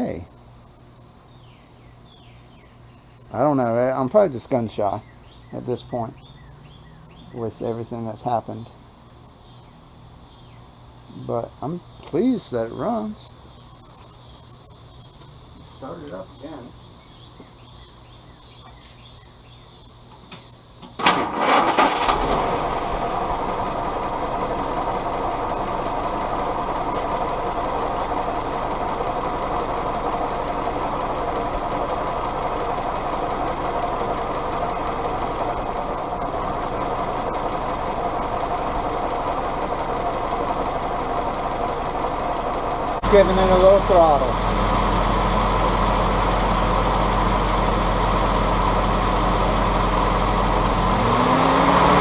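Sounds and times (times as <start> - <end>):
engine cranking and idling: 20.2 - 52.0.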